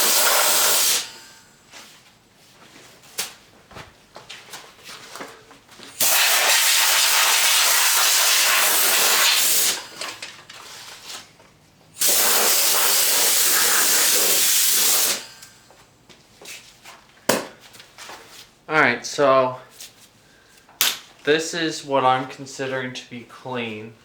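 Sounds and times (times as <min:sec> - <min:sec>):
compressed air hissing: 0:00.0 - 0:01.2, 0:06.0 - 0:10.0, 0:12.0 - 0:15.4.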